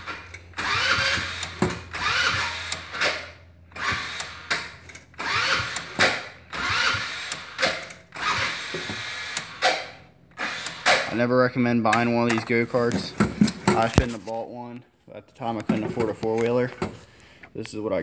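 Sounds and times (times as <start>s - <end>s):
engine electric starter cranking: 0.0s - 11.2s.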